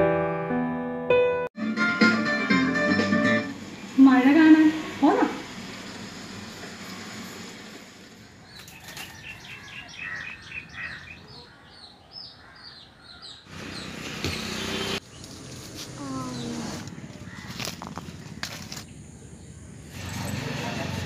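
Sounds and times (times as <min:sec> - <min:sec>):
small birds chirping: 0:08.1 - 0:20.0.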